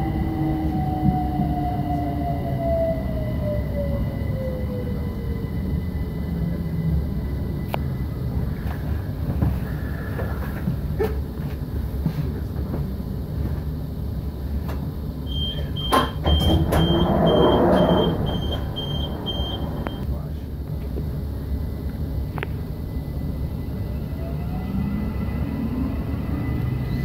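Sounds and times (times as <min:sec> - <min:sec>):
train wheels rumbling: 0:00.0 - 0:27.0
train motor whine: 0:14.7 - 0:20.2
high door alert beeps: 0:15.3 - 0:20.0
door clunks: 0:15.8 - 0:20.0.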